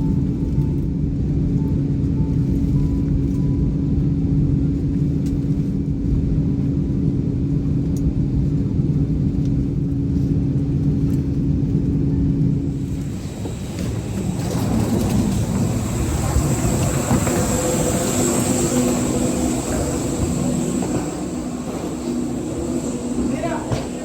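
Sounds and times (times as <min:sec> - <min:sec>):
engine rumble: 0:00.0 - 0:24.0
thin high whine: 0:12.8 - 0:24.0.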